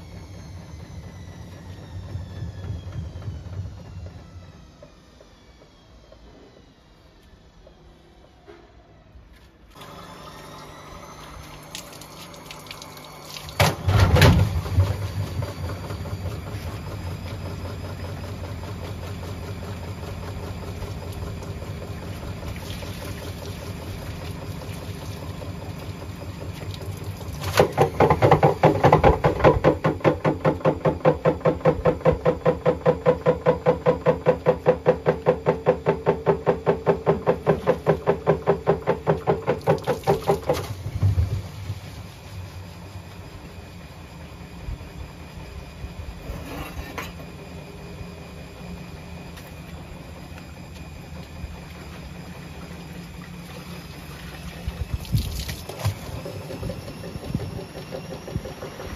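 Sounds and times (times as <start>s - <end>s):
washing machine hum: 0.0s - 58.9s
water pouring into washing machine: 9.8s - 18.1s, 19.8s - 29.3s, 37.0s - 41.8s, 52.4s - 57.9s.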